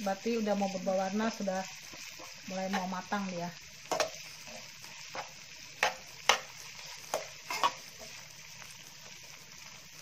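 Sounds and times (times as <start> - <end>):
food sizzling in hot oil: 0.0 - 10.0
spatula scraping and knocking pan: 1.3 - 3.1, 3.8 - 8.2.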